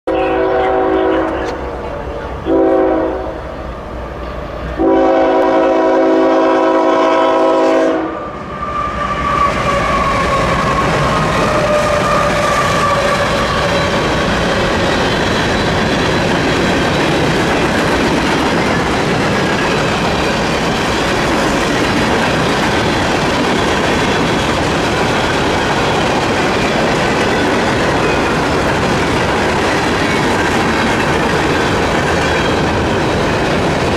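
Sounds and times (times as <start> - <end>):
locomotive air horn: 0.1 - 1.6, 2.5 - 3.4, 4.8 - 13.4
freight train rumbling past: 0.1 - 33.9
wheels clacking over rail joints: 9.5 - 33.9.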